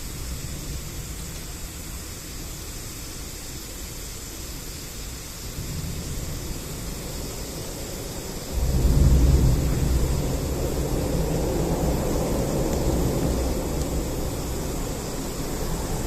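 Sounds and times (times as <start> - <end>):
steady hiss: 0.0 - 16.0
wind rumbling on microphone: 5.2 - 16.0.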